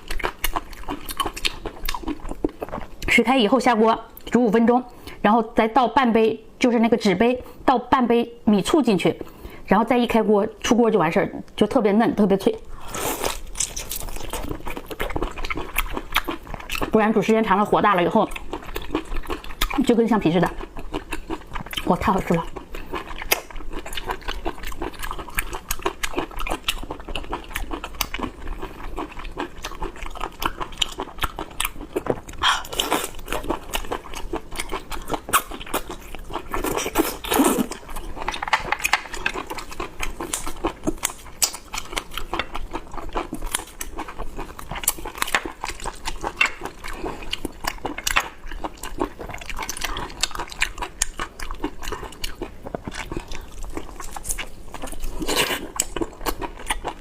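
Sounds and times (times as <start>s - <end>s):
person chewing and biting: 0.0s - 3.1s, 12.7s - 17.0s, 18.3s - 19.8s, 20.6s - 21.9s, 22.5s - 57.0s.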